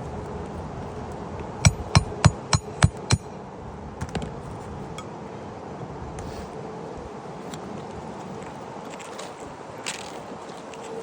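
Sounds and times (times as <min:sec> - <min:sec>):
hammer striking nail: 0:01.7 - 0:03.3.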